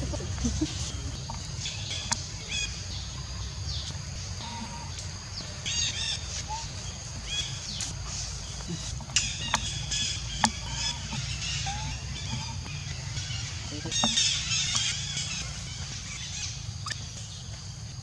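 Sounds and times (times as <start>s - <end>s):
steady low rumble: 0.0s - 18.0s
animal chirps and squeaks: 5.6s - 17.2s.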